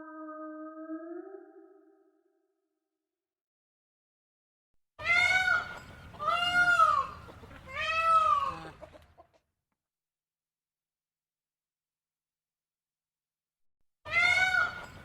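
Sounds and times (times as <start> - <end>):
animal crying out: 5.0 - 9.0, 14.1 - 14.9.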